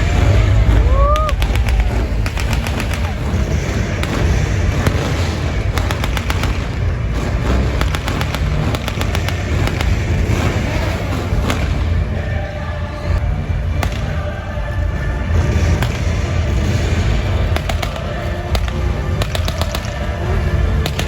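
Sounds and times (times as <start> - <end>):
rising whistle: 0.0 - 2.3
gunshots: 0.0 - 12.4, 13.6 - 21.0
low rumble: 0.0 - 21.0.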